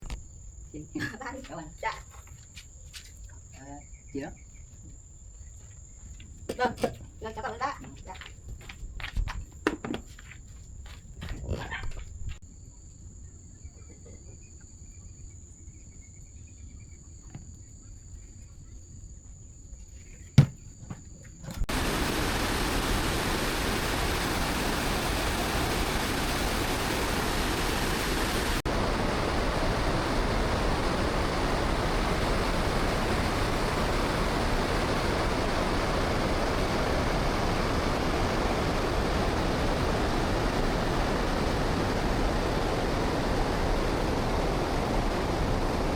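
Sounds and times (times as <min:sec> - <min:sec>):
insects trilling: 0:00.0 - 0:08.3, 0:10.2 - 0:24.8.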